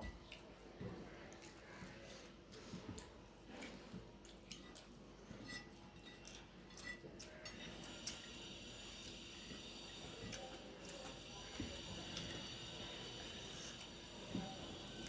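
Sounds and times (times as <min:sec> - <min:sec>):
chewing clicks and smacks: 0:02.9 - 0:05.0.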